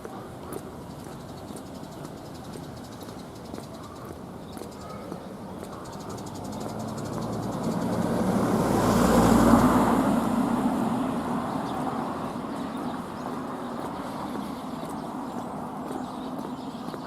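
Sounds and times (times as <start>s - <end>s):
vehicle driving past: 6.4s - 12.6s.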